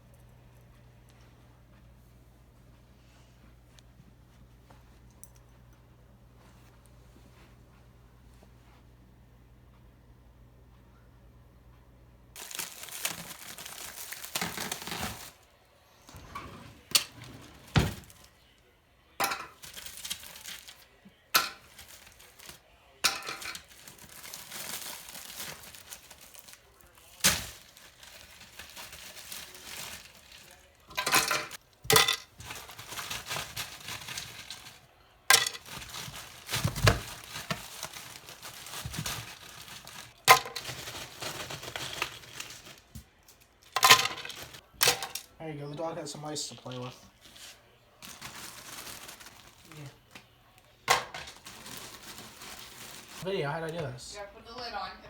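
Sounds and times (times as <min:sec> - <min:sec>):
packaging rustling and crinkling: 0:12.4 - 0:15.4, 0:16.8 - 0:18.3, 0:19.6 - 0:20.9, 0:21.6 - 0:22.6, 0:23.4 - 0:30.9, 0:32.4 - 0:45.3, 0:46.5 - 0:53.3
dishes clinking and knocking: 0:19.2 - 0:19.6, 0:30.9 - 0:32.4.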